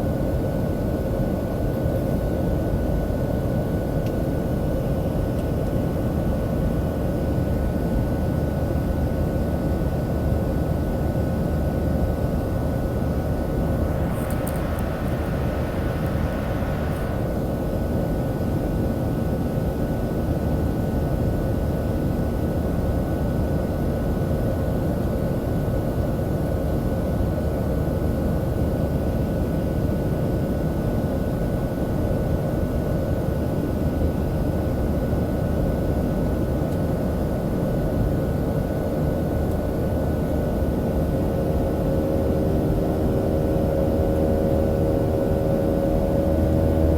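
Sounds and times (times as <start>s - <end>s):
airplane cabin engine rush: 0.0s - 46.9s
steady hum tones: 10.2s - 19.3s, 40.3s - 46.9s
brief hiss: 13.0s - 18.2s.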